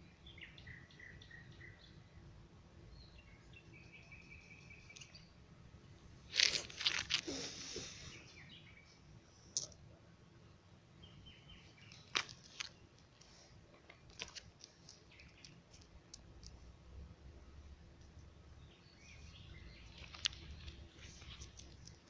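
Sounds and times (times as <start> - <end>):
faint bird chirps: 0.0 - 2.2, 2.9 - 5.4.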